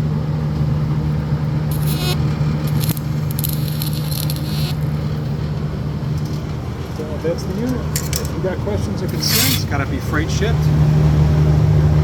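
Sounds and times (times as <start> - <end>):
welder humming: 1.6 - 6.9, 9.1 - 9.8
crackling and scraping bursts: 1.7 - 8.4, 9.0 - 9.8.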